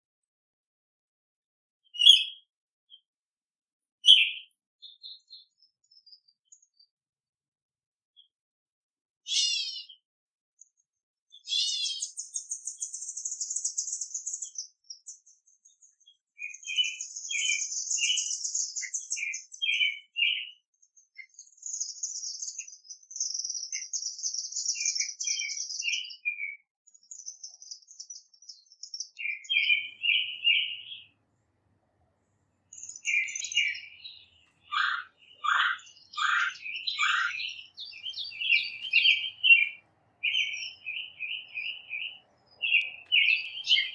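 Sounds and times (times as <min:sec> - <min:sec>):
bird chirps: 0:01.9 - 0:02.4, 0:04.1 - 0:06.2, 0:09.3 - 0:10.0, 0:11.4 - 0:20.6, 0:21.3 - 0:31.1, 0:32.7 - 0:43.9
songbirds buzzy trills: 0:29.5 - 0:31.1, 0:32.7 - 0:43.9.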